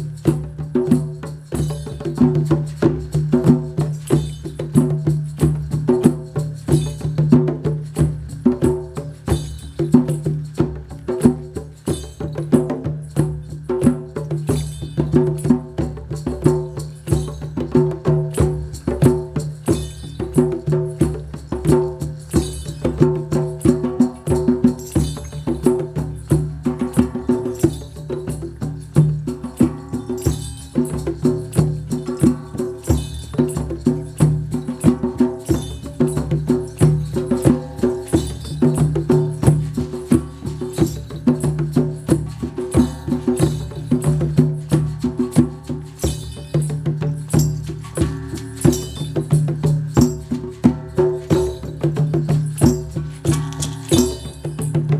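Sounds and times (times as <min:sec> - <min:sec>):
fast percussive tapping: 0:00.0 - 0:54.9.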